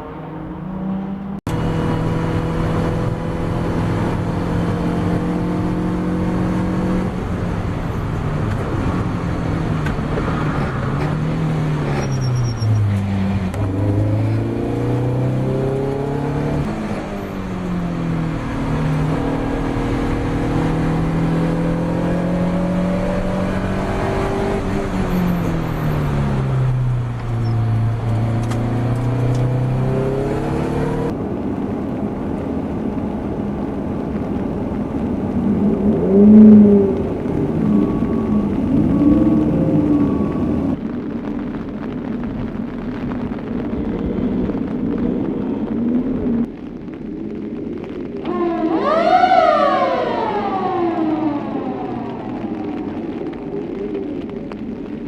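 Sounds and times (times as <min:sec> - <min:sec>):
race car engine under load: 0:00.0 - 0:40.8.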